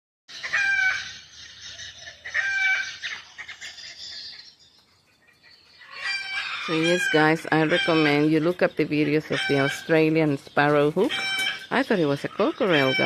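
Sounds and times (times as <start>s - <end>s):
higher bird chatter: 0.3s - 13.0s
hawk calling: 5.8s - 10.1s, 10.9s - 13.0s.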